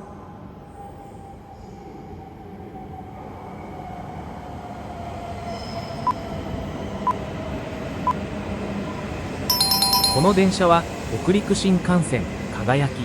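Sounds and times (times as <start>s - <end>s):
short beeps: 9.5s - 10.5s
high tone falling in pitch: 9.5s - 10.6s.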